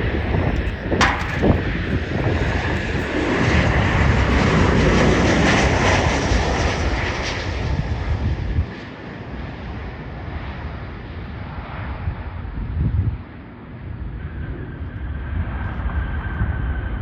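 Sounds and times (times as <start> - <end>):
jet airliner passing: 0.0 - 12.6.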